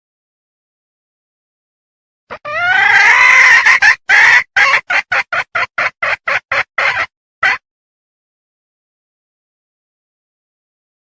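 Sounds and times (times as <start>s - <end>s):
hen calling and clucking: 2.3s - 7.6s.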